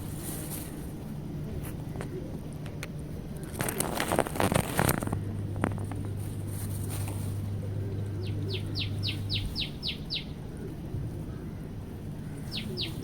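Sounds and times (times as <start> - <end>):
songbird singing: 5.2 - 13.0.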